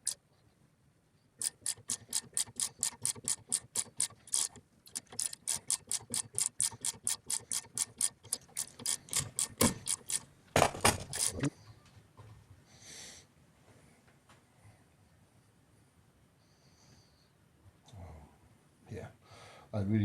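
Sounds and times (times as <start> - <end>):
hand ratchet clicking: 1.4 - 11.5.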